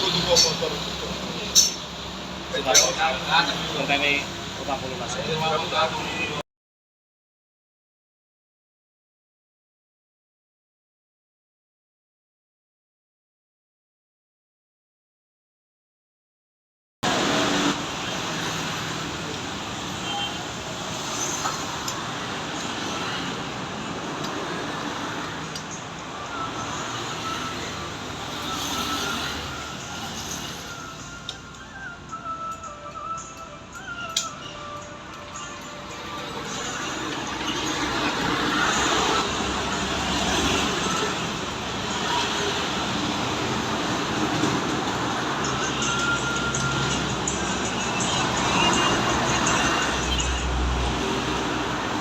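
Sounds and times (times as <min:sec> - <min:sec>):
road traffic: 0:00.0 - 0:06.4, 0:17.0 - 0:52.0.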